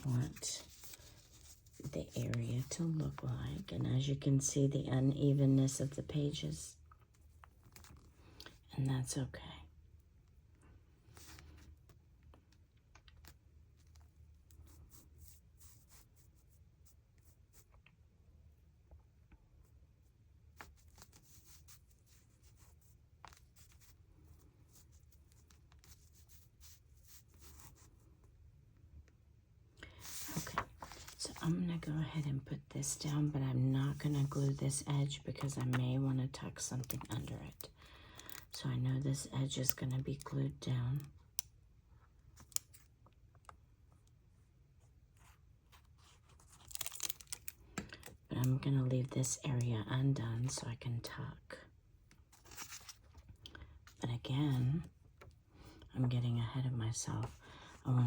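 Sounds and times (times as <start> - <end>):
paper rustling: 0.0 - 4.2, 29.9 - 31.9, 33.9 - 35.8, 36.8 - 38.5, 45.2 - 48.1, 52.2 - 53.4
soft paper rubbing: 0.0 - 8.4, 11.0 - 12.2, 13.2 - 17.9, 19.5 - 28.5, 29.9 - 38.6, 43.9 - 47.7, 52.1 - 55.9.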